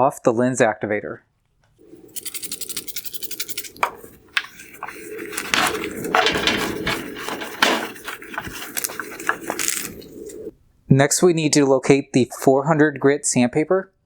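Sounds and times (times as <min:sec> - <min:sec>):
water splashing and running: 0:01.8 - 0:10.5
knocks and scrapes of headlight: 0:02.0 - 0:10.5.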